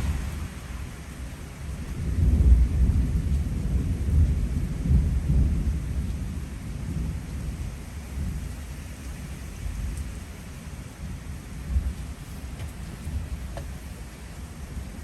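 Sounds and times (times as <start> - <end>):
rolling thunder: 0.0 - 8.5
heavy rain: 0.0 - 15.0.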